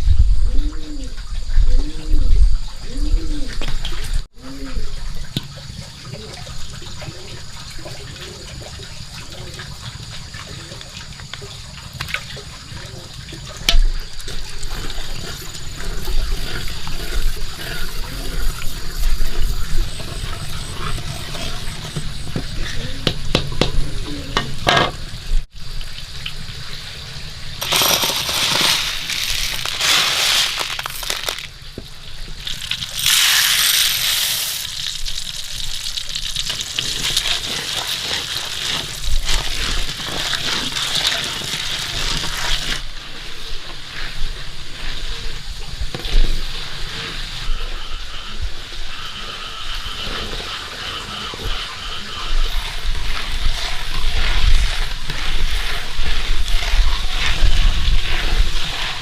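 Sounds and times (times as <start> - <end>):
water splashing and running: 5.0 - 22.2, 24.4 - 47.3, 52.5 - 59.0
food sizzling in hot fat: 27.1 - 31.6, 32.4 - 43.3.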